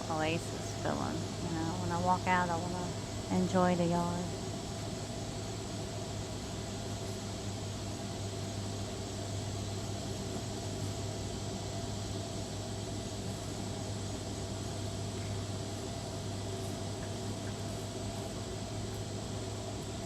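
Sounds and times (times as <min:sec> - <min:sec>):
motor humming: 0:00.0 - 0:05.6.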